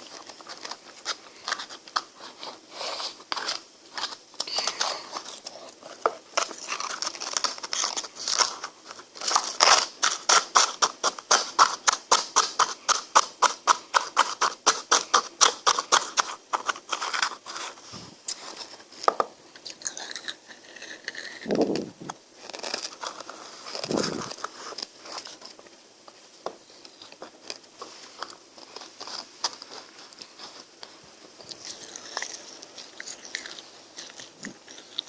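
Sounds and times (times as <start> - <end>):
crunchy chewing of ice cream: 0.0 - 18.9, 19.5 - 25.4, 26.6 - 35.0.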